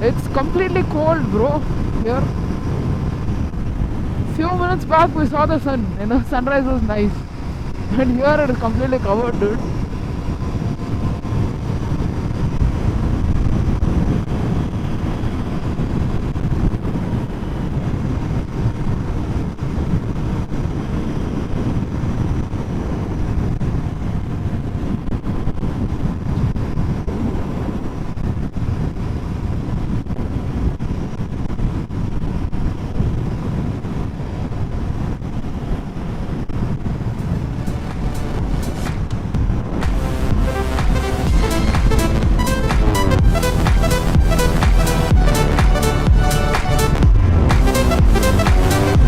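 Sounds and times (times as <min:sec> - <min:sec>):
wind rushing over microphone: 0:00.0 - 0:49.0
motorcycle engine cruising: 0:36.7 - 0:49.0.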